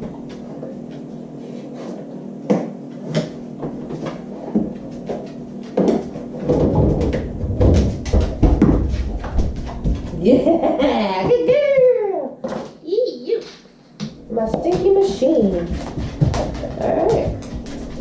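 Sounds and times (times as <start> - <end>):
refrigerator door knocks and thumps: 6.4 - 10.0.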